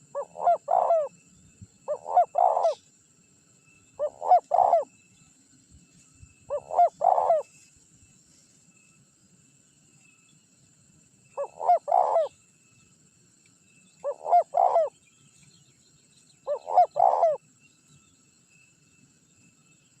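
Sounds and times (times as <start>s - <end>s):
dove cooing: 0.0s - 1.1s, 1.9s - 2.8s, 4.0s - 4.9s, 6.5s - 7.5s, 11.4s - 12.3s, 14.0s - 14.9s, 16.4s - 17.4s.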